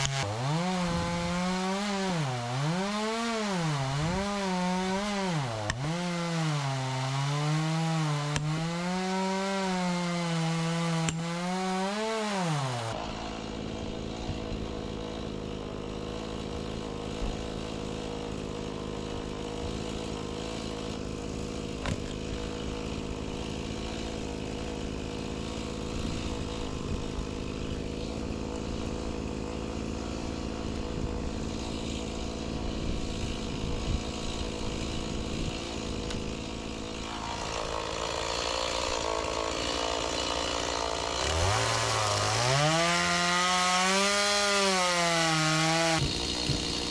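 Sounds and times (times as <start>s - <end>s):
chainsaw cutting wood: 0.0s - 46.9s
steady engine drone: 37.0s - 38.2s.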